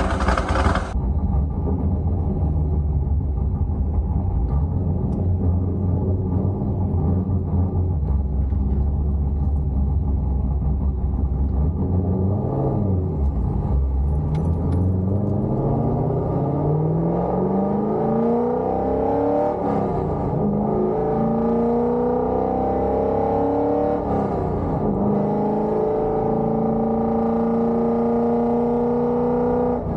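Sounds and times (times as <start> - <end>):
car engine accelerating: 0.0 - 1.0.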